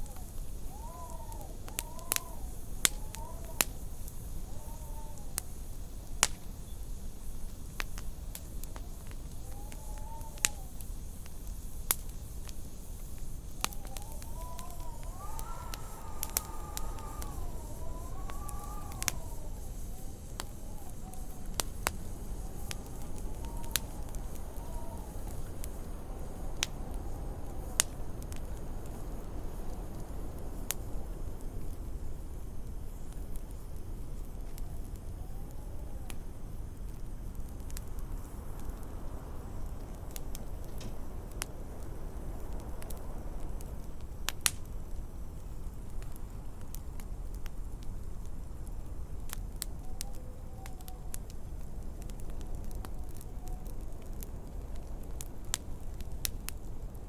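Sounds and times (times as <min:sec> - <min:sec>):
faint wavering whistle: 0:00.0 - 0:07.0, 0:08.5 - 0:11.3, 0:12.8 - 0:30.0
wind howling: 0:00.0 - 0:57.0
wood fire crackling: 0:00.0 - 0:57.0
wind rushing: 0:13.6 - 0:31.6.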